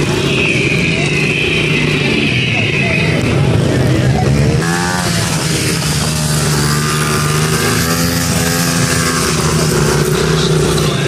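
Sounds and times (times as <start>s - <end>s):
mini dirt bike engines running: 3.3s - 11.0s.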